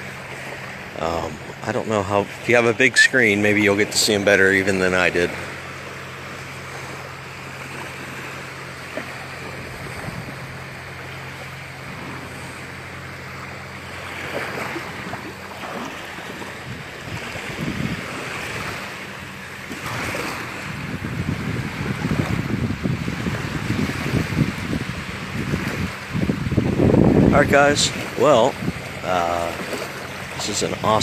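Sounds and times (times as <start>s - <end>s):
waves washing on sand: 0.0s - 31.0s
wind buffeting microphone: 0.0s - 31.0s.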